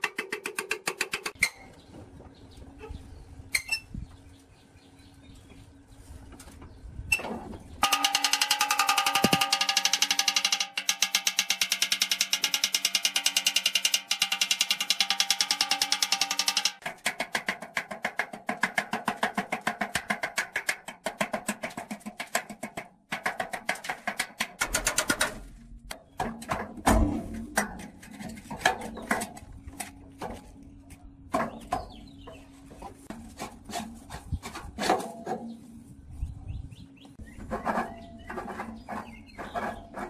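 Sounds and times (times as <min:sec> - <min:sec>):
rapid ringing metal strikes: 0:07.8 - 0:17.9
scattered knocks and clatter: 0:07.8 - 0:29.4.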